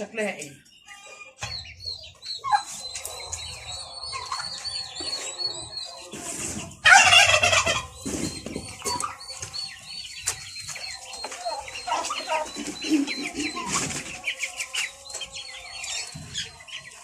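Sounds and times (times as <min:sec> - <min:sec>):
chicks peeping: 0:00.0 - 0:17.0
hens clucking: 0:01.2 - 0:17.0
poultry squawk: 0:06.8 - 0:09.2.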